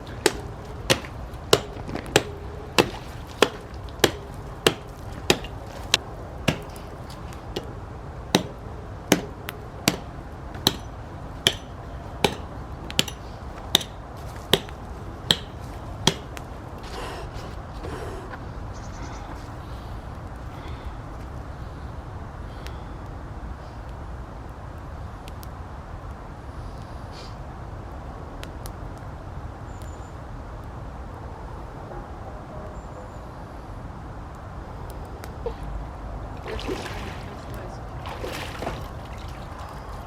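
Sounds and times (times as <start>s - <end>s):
axe blows: 0.0s - 7.8s, 8.4s - 18.4s.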